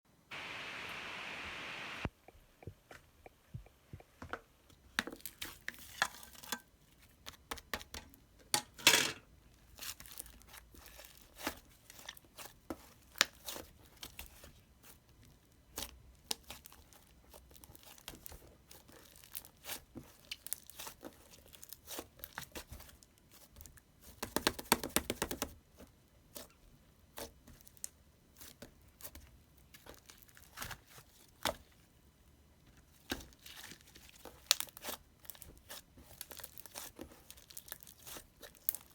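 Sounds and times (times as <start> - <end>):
material crinkling and crackling: 32.8 - 38.9.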